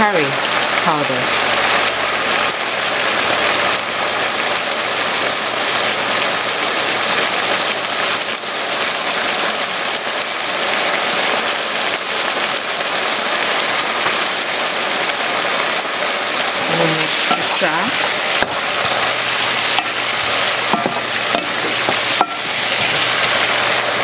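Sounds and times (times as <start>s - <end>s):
food sizzling in a pan: 0.0s - 24.0s.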